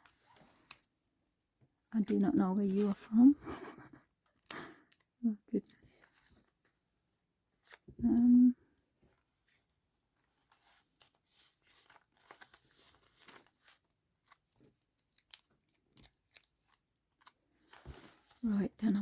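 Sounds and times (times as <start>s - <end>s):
paper rustling and crinkling: 2.0s - 5.1s, 5.8s - 6.7s, 7.6s - 8.2s, 9.1s - 18.7s.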